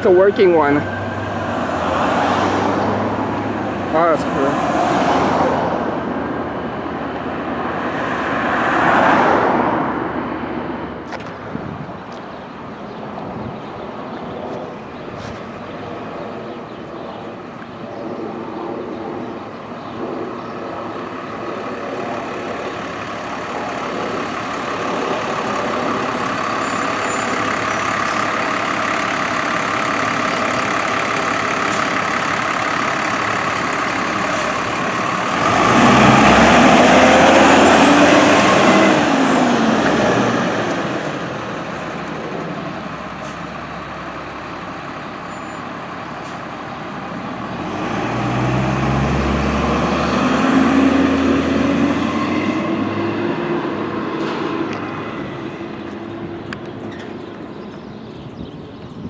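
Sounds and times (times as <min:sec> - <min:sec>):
fire engine engine: 0:00.0 - 0:59.0
fire engine horn honking: 0:26.2 - 0:29.3.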